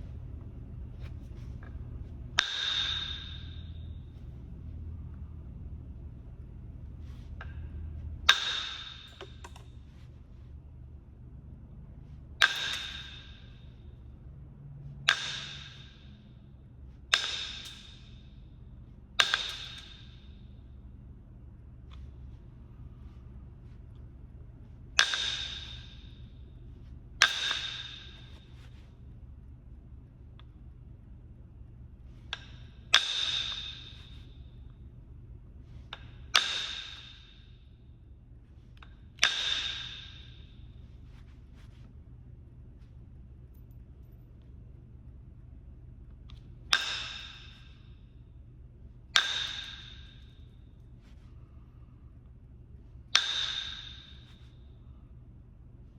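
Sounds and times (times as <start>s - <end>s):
strikes on ringing stone: 2.3s - 4.2s, 8.3s - 9.6s, 12.4s - 13.9s, 15.1s - 16.4s, 17.1s - 18.5s, 19.2s - 20.7s, 25.0s - 28.9s, 32.1s - 34.8s, 35.6s - 37.7s, 39.0s - 41.8s, 46.3s - 48.2s, 49.1s - 51.2s, 53.1s - 54.7s.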